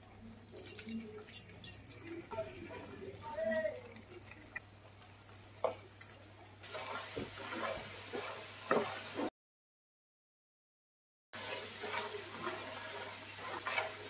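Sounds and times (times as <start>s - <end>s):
fries sizzling in oil: 0.4s - 9.3s, 11.4s - 14.0s
metal spatula scraping a pan: 6.6s - 9.3s, 11.4s - 14.0s.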